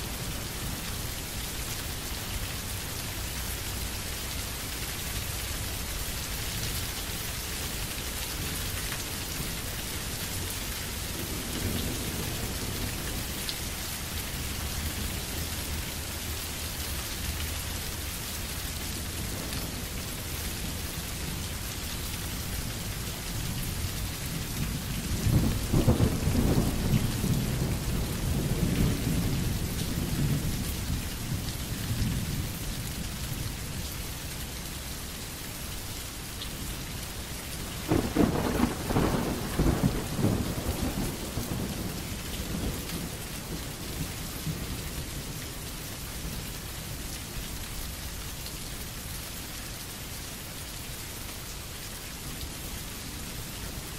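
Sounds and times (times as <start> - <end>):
steady rain: 0.0 - 53.9
thunder rumbling: 24.7 - 30.5, 37.9 - 44.7.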